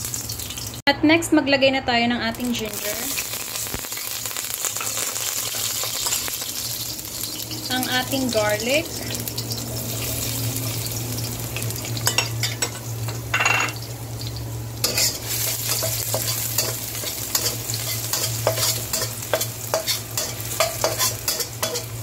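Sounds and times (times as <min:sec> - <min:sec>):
garlic sizzling in hot oil: 0:00.0 - 0:00.8, 0:02.3 - 0:22.0
metal spatula scraping a wok: 0:14.8 - 0:22.0.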